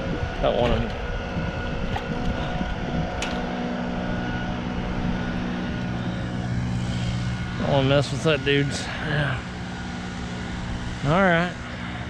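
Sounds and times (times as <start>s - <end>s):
engine droning: 0.0s - 12.0s
low rumble: 0.0s - 12.0s.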